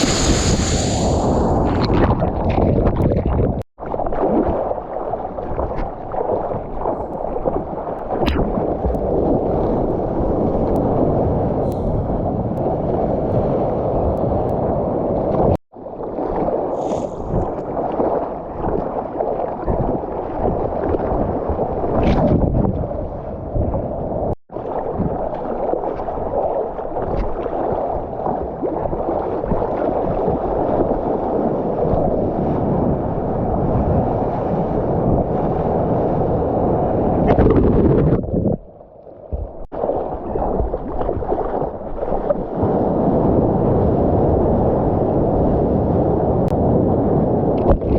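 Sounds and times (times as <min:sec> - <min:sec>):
wind buffeting: 0:00.0 - 0:03.6, 0:32.0 - 0:38.7
water rushing and sloshing: 0:00.0 - 0:22.8, 0:24.5 - 0:47.9.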